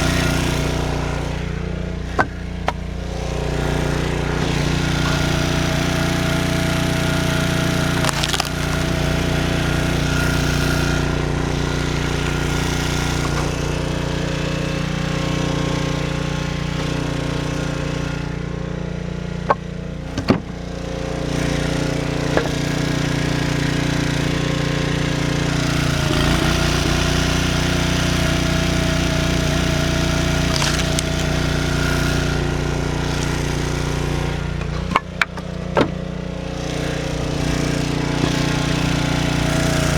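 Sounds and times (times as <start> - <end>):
engine running: 0.0 - 39.9
wood knocking: 30.5 - 31.3, 34.9 - 36.0.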